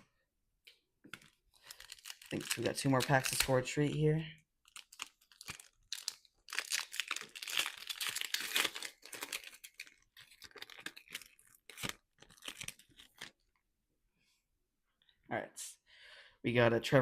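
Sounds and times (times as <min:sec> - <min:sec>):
foil wrapper tearing and crinkling: 0:01.2 - 0:03.6, 0:04.6 - 0:13.3.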